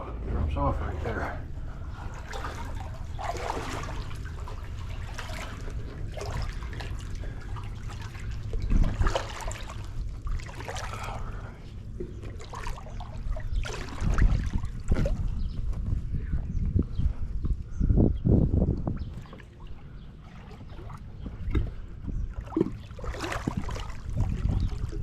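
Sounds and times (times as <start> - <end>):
low steady rumble: 0.0 - 25.0
water splashing and trickling: 0.6 - 16.0, 18.6 - 25.0.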